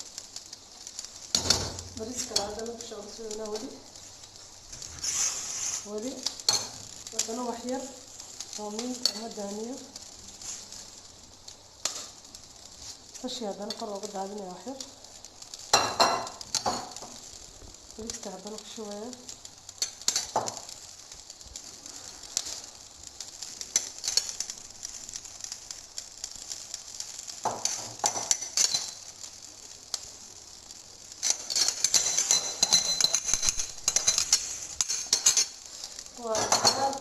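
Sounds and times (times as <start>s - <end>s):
spoon scraping and clinking pot: 31.2s - 35.5s.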